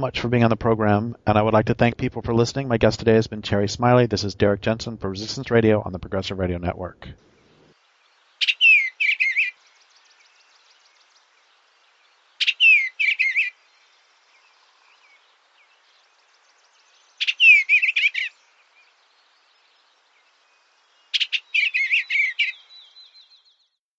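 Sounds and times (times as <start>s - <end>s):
songbird warbling: 7.2s - 23.6s.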